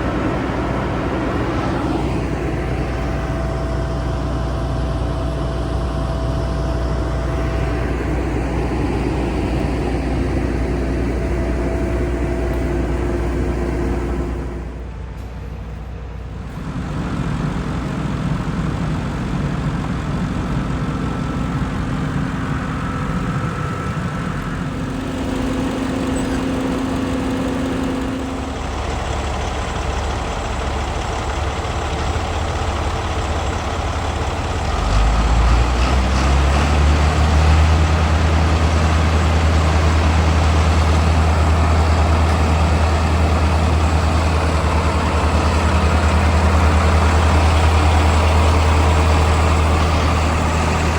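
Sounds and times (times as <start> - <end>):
deep loud drone: 0.0 - 15.2, 16.2 - 50.9
heavy diesel engine running: 0.0 - 50.9.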